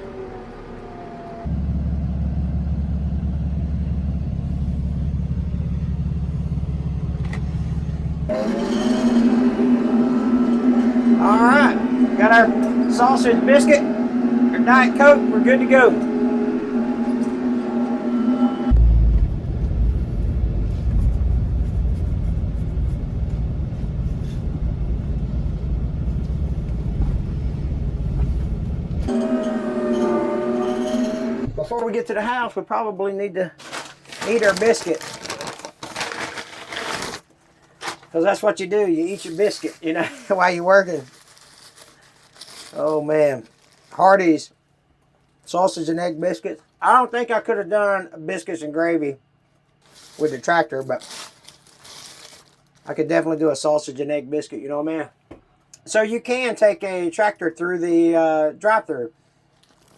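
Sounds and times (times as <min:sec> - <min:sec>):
tractor diesel engine running: 0:00.0 - 0:31.8, 0:37.8 - 0:44.2.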